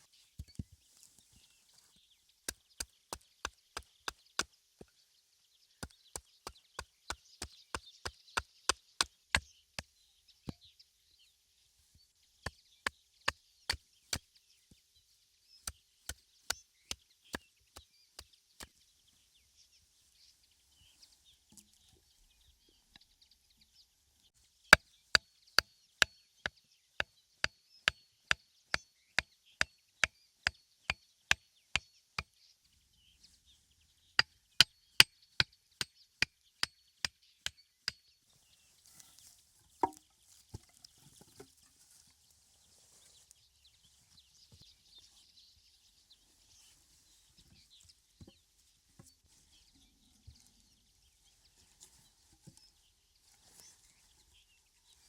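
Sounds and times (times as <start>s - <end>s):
wood chopping by hand: 2.5s - 4.5s, 39.8s - 40.0s.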